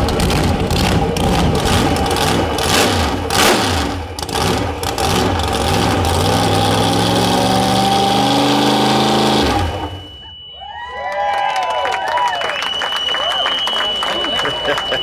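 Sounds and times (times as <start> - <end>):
engine revving and crackling: 0.0 - 10.1
engine idling: 0.0 - 10.2
loud engine burst: 0.0 - 10.2.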